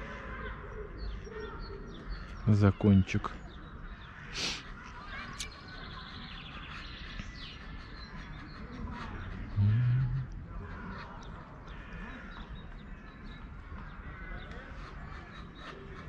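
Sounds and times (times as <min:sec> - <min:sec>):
birds calling and chirping: 0:00.0 - 0:16.0.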